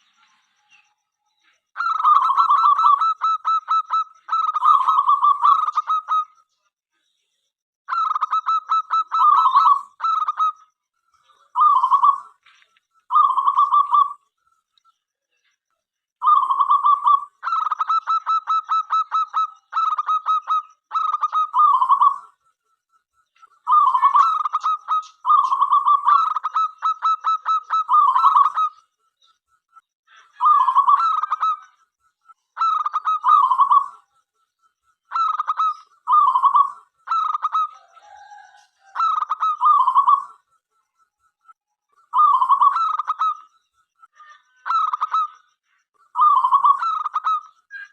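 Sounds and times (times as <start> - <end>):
dove cooing: 1.8 - 6.3, 11.5 - 12.4, 13.1 - 14.2, 16.2 - 22.3, 23.7 - 28.7, 30.2 - 31.6, 32.6 - 34.0, 35.1 - 40.4, 42.1 - 43.4, 46.2 - 47.4.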